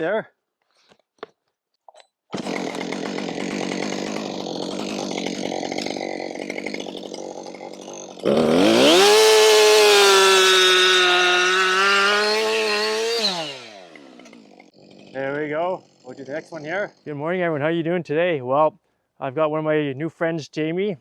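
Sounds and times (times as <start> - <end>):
chainsaw revving and cutting log: 2.3 - 17.2.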